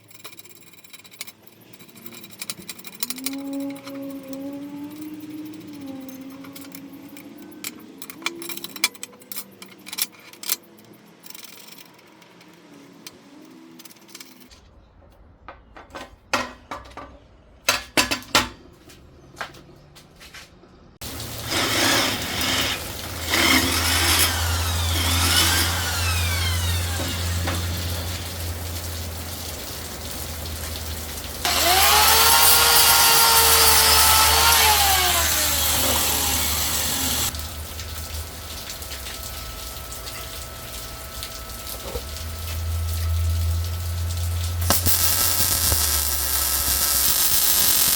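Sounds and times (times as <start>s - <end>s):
metal parts knocking and clicking: 0.0s - 12.7s
power tool running: 21.0s - 47.9s.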